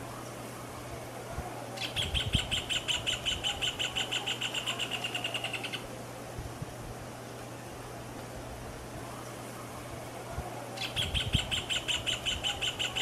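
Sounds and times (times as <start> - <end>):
bird singing sharp repeated notes: 1.8 - 5.9, 10.8 - 13.0.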